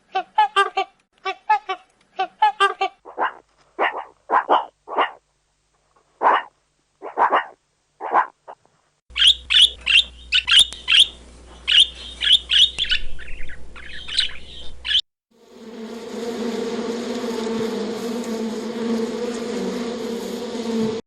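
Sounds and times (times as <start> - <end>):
dog bark: 3.1 - 5.2, 6.2 - 8.4
small bird chirping: 9.1 - 15.0
insect buzz: 15.3 - 21.0.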